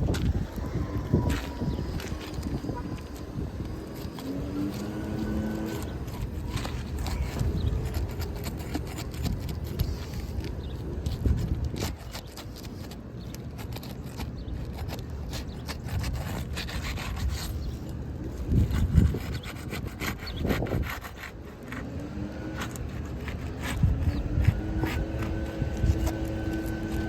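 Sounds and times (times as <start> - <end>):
irregular scraping and rubbing: 0.0 - 27.0.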